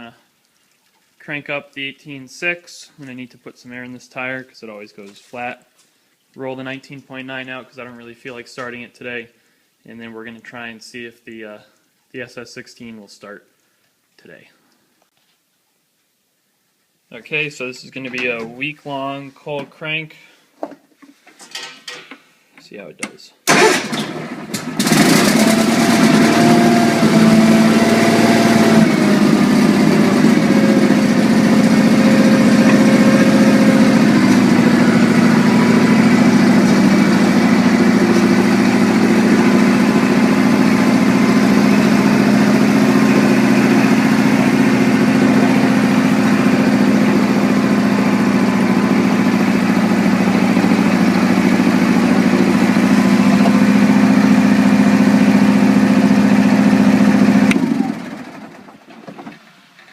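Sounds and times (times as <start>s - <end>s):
small gasoline engine idling: 23.5s - 58.9s.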